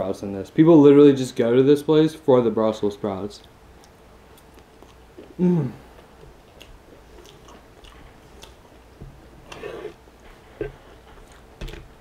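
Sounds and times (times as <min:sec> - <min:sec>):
chewing with wet mouth sounds: 0:03.8 - 0:08.9.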